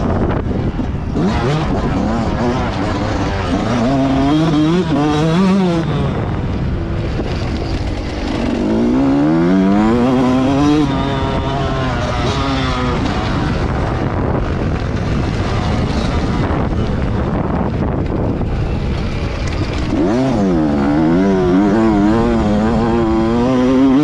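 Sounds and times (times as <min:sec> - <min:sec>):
motocross bike engine revving: 0:00.0 - 0:24.0
wind rumble: 0:00.0 - 0:24.0.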